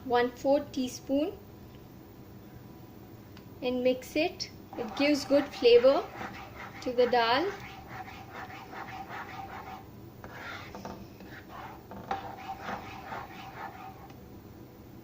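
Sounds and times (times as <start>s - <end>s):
spoon scraping a pot: 4.7s - 14.1s.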